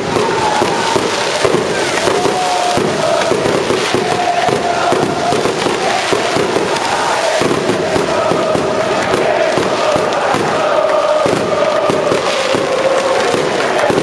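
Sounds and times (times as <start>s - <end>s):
crowd chanting: 0.0s - 14.0s
fireworks and firecrackers crackling: 0.0s - 14.0s.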